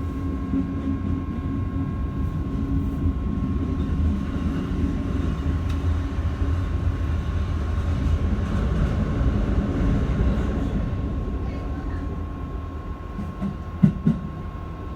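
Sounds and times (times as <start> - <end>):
train wheels rumbling on track: 0.0 - 14.9.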